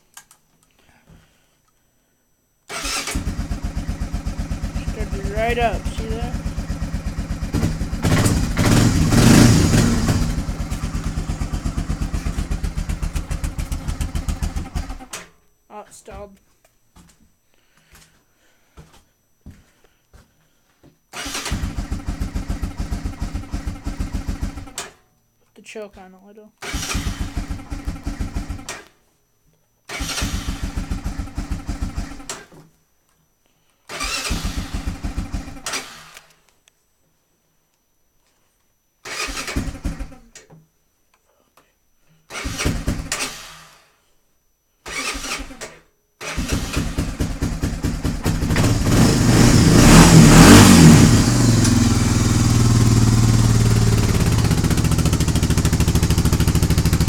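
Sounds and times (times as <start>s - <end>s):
atv engine revving and idling: 2.7s - 15.1s, 21.2s - 24.8s, 26.7s - 28.7s, 29.9s - 32.3s, 34.0s - 35.9s, 42.4s - 43.5s, 46.3s - 57.0s.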